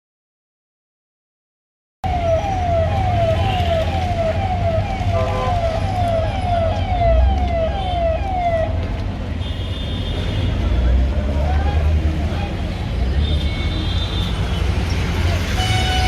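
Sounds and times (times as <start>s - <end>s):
vehicle siren wailing: 2.0s - 9.1s.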